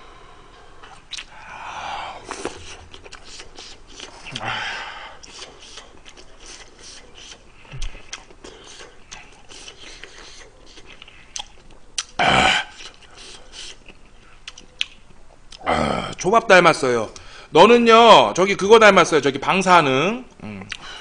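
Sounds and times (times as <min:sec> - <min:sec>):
wet chewing and mouth clicks: 0:00.8 - 0:01.4, 0:02.2 - 0:04.5, 0:05.2 - 0:15.6
loud mouth burst: 0:12.1 - 0:13.8.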